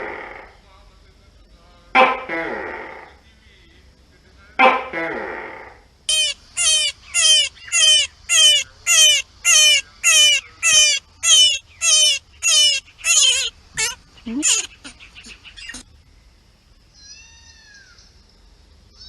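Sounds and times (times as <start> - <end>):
gecko calling: 4.9 - 15.9.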